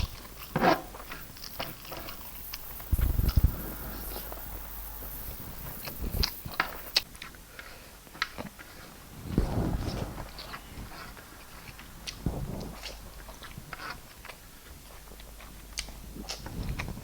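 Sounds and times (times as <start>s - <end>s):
low bumps: 0.0s - 7.0s
person chewing and eating: 0.0s - 7.4s, 10.3s - 17.0s.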